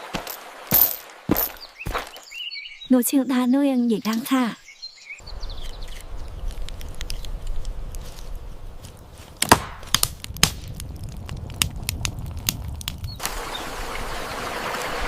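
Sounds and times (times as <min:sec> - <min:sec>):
sharp knocks and cracks: 0:05.6 - 0:13.3.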